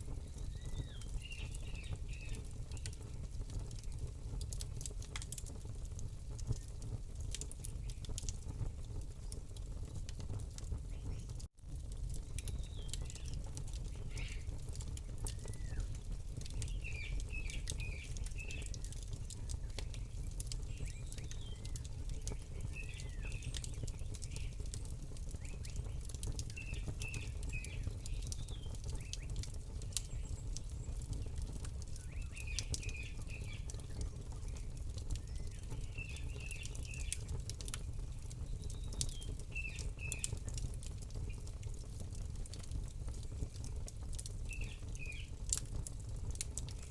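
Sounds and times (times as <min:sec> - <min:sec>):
campfire crackling and popping: 0:00.0 - 0:46.9
bird chirping: 0:00.2 - 0:02.9.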